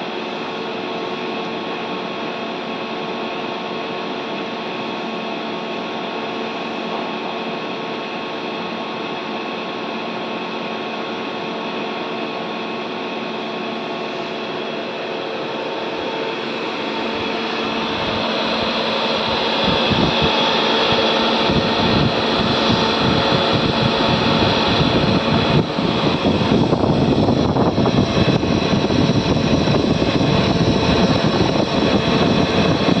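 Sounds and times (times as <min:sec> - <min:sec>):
machinery whirring and humming: 0:00.0 - 0:33.0.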